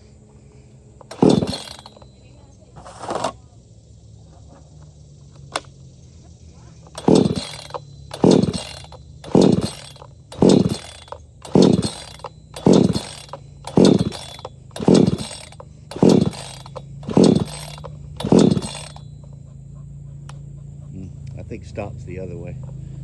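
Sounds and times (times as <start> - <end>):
chainsaw recoil starter pulls: 1.0 - 3.4, 5.3 - 5.8, 6.8 - 19.3.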